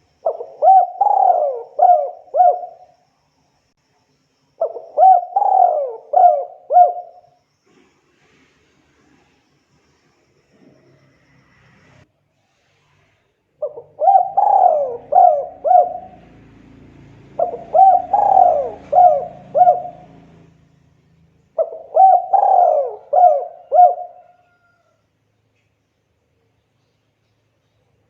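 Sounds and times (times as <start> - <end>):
dove cooing: 0.0 - 2.9, 4.6 - 7.3, 13.6 - 20.6, 21.6 - 24.9.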